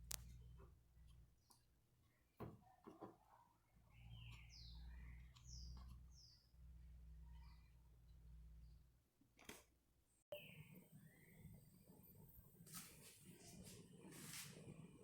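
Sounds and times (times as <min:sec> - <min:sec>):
faint bird chirping: 0:00.0 - 0:09.1, 0:10.3 - 0:14.4.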